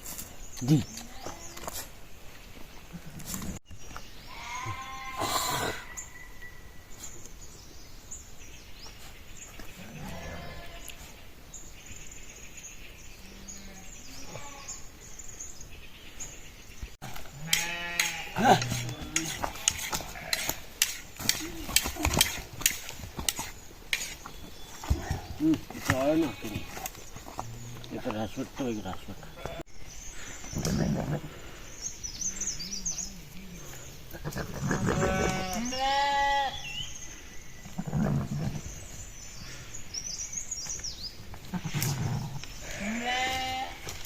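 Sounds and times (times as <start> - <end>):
sheep bleating: 4.3 - 5.5, 9.8 - 10.9, 17.3 - 20.6, 25.9 - 26.9, 34.2 - 36.6, 42.6 - 43.9.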